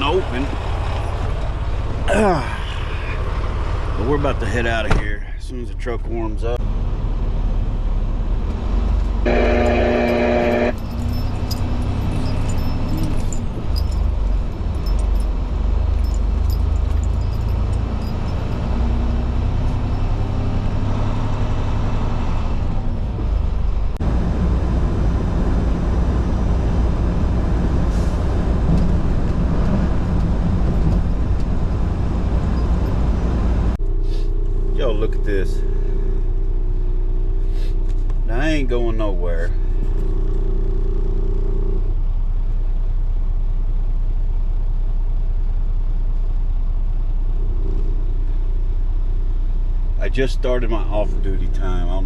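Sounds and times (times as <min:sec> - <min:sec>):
diesel engine rumble: 0:00.0 - 0:52.0
short pitched tone: 0:09.3 - 0:10.9.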